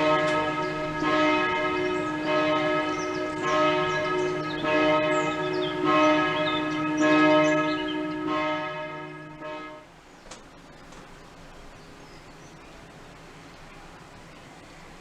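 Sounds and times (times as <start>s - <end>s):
church bells ringing: 0.0s - 9.9s.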